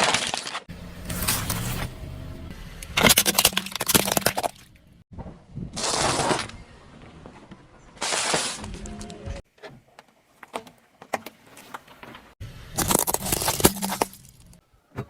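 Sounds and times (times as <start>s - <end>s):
objects cracking under car tyre: 0.0s - 5.0s, 10.4s - 14.6s.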